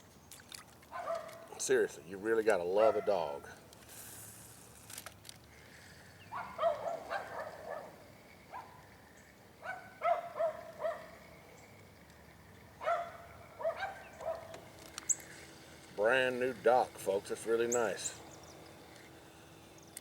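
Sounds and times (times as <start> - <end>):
dog barking: 0.9 - 1.4, 6.3 - 8.8, 9.6 - 11.1, 12.8 - 14.6.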